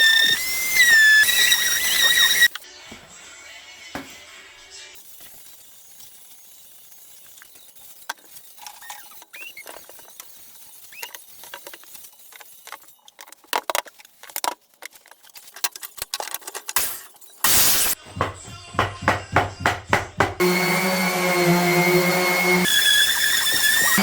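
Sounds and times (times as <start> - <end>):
short squeaks: 0.0 - 2.6, 7.0 - 13.2
small hard pieces clicking: 5.1 - 17.4.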